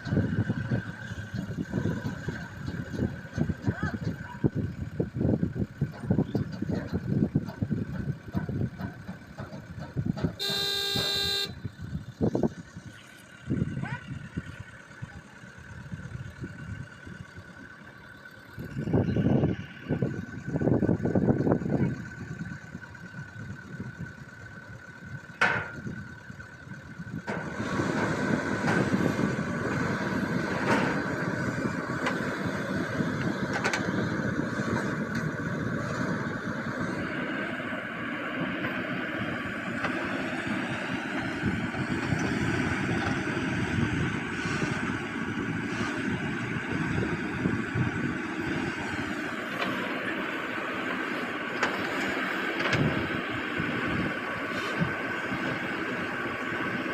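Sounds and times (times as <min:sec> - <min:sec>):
heavy machine engine running: 0:00.0 - 0:56.9.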